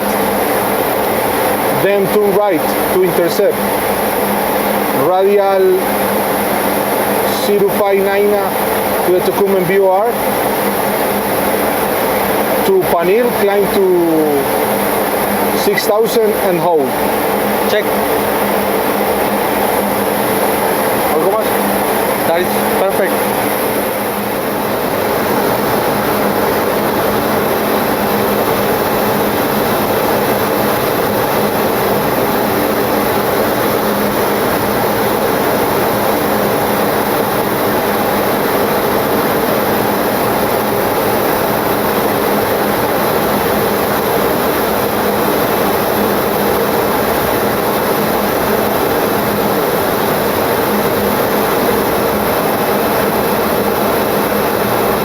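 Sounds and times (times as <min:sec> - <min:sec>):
airflow rushing in cockpit: 0:00.0 - 0:55.0
faint steady hum: 0:00.0 - 0:55.0.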